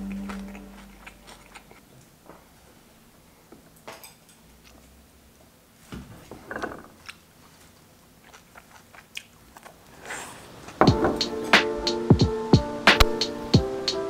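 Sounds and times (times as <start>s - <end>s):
person chewing food: 0.0s - 2.2s, 6.9s - 10.4s.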